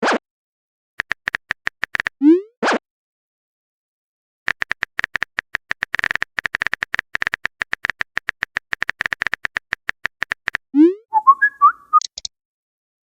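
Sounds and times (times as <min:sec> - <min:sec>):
phone keyboard typing clicks: 0:01.0 - 0:02.2, 0:04.5 - 0:10.7, 0:12.0 - 0:12.3.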